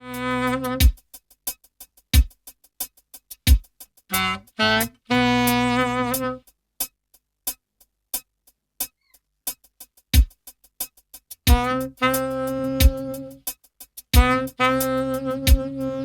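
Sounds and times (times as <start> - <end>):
saxophone notes with vibrato: 0.0 - 1.0, 4.1 - 6.4, 11.5 - 13.4, 14.2 - 16.0
light ticking drum beat: 0.0 - 16.0
deep kick drum: 0.8 - 1.0, 3.5 - 3.7, 10.2 - 10.4, 11.5 - 11.9, 12.8 - 13.1, 14.2 - 14.5, 15.4 - 15.7.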